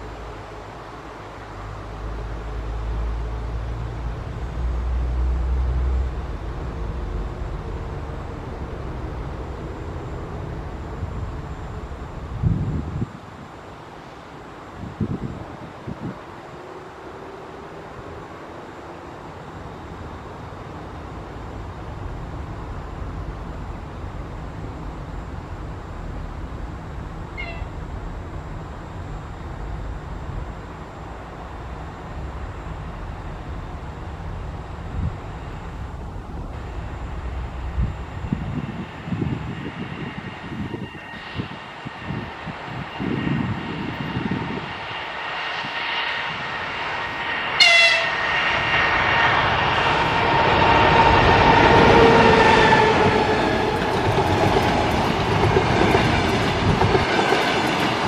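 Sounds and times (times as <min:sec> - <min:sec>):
electric locomotive rumble: 0:00.0 - 0:58.0
wind buffeting the microphone: 0:05.4 - 0:13.7, 0:14.7 - 0:16.4, 0:21.6 - 0:47.3, 0:48.2 - 0:58.0
high-pitched train call: 0:27.2 - 0:28.2, 0:36.6 - 0:56.0.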